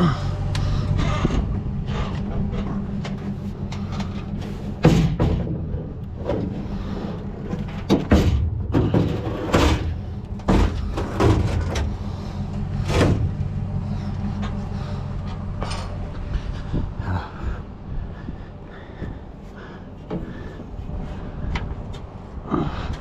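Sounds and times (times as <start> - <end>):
steady low hum: 0.0 - 23.0
scrap metal knocking and clanking: 0.8 - 16.8.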